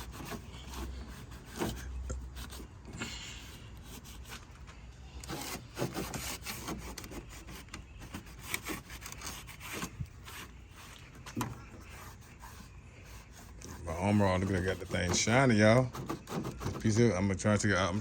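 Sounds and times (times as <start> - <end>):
cloth wiping plastic trim: 6.7 - 17.0.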